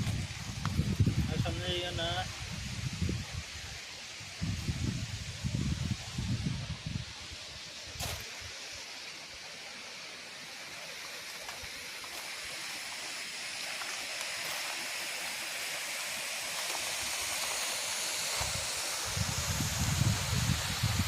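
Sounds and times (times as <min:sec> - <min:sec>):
waterfall rushing: 0:08.7 - 0:21.0.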